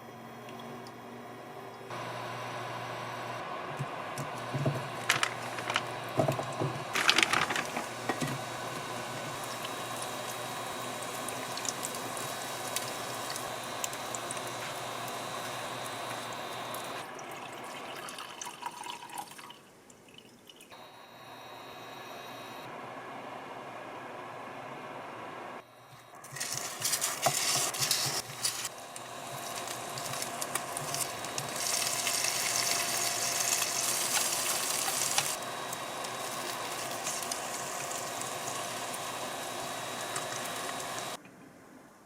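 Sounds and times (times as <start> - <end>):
tap water running: 3.7 - 20.7, 26.2 - 41.2.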